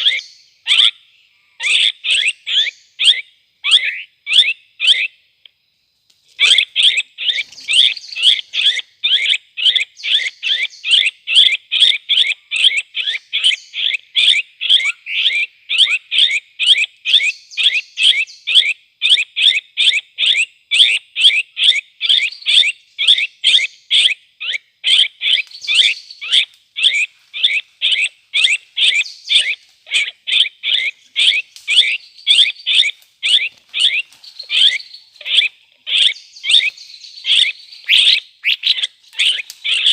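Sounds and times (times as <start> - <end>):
bird calling rapid notes: 24.9 - 39.9.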